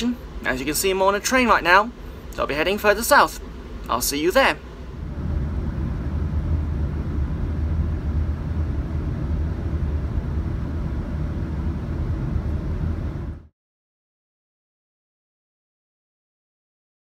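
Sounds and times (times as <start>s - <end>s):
train running low rumble: 0.0s - 13.5s.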